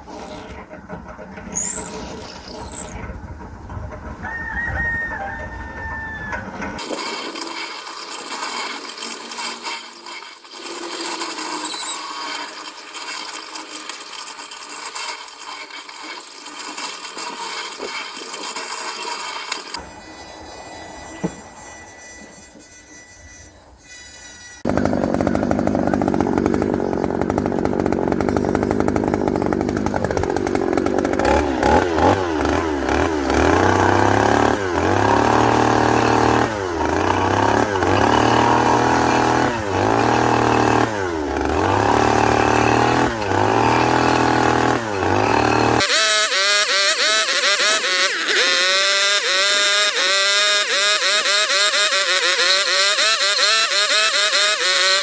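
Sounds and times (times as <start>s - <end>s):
chainsaw revving cutting wood: 0.0s - 0.6s, 1.5s - 3.0s, 24.6s - 55.0s.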